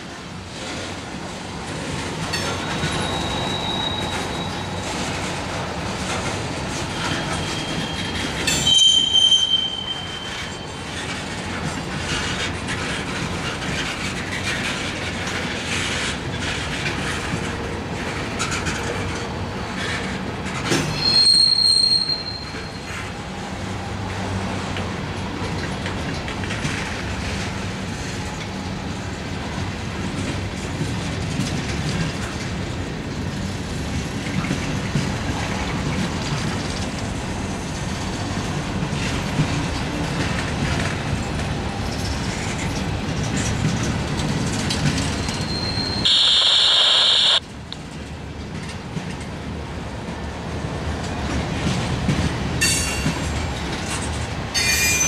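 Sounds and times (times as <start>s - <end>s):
freight train wheels rumbling: 0.0s - 46.6s, 47.2s - 55.0s
high-pitched wheel squeal: 2.5s - 4.8s, 7.0s - 11.0s, 20.9s - 22.9s, 45.1s - 47.4s.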